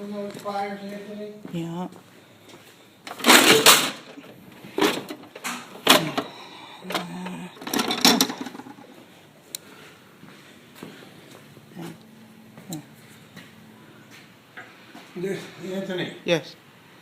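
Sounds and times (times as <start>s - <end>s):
metal hand tools clattering: 3.1s - 6.3s, 6.9s - 8.8s.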